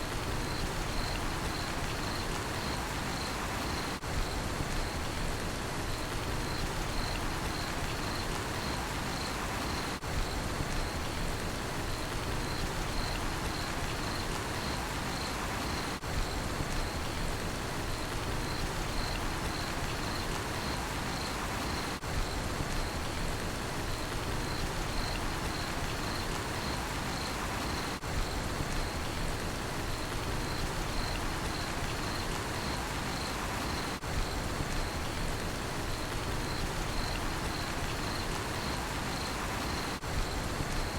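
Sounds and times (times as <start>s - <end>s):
steady rain falling: 0.0s - 40.9s
cricket chirping: 0.2s - 5.2s, 5.9s - 11.2s, 11.9s - 17.2s, 17.9s - 23.2s, 24.0s - 29.3s, 29.9s - 35.2s, 35.8s - 40.9s.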